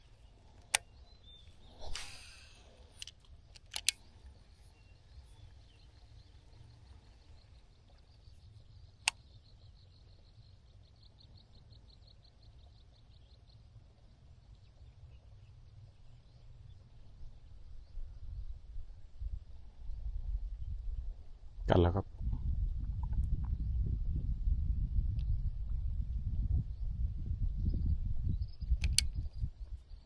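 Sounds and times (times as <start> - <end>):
sharp clicks: 1.8 - 4.1, 28.7 - 29.2.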